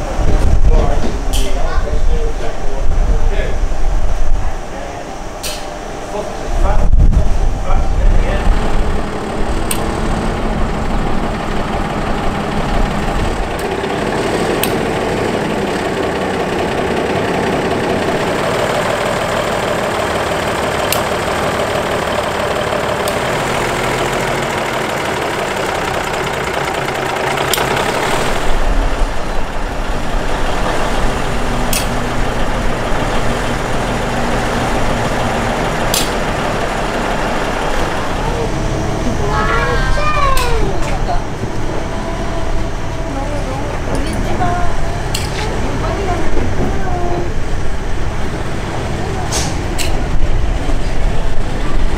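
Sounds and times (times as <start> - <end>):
train rumbling: 0.0 - 51.9
sharp clicks: 9.6 - 10.0.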